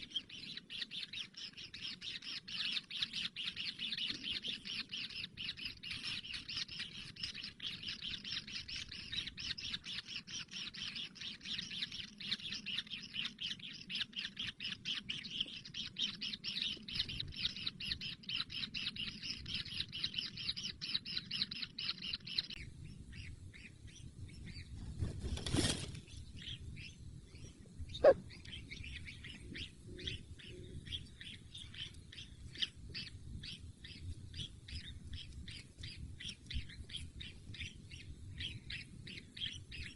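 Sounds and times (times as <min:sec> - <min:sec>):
chicks begging chirps: 0:26.4 - 0:38.1.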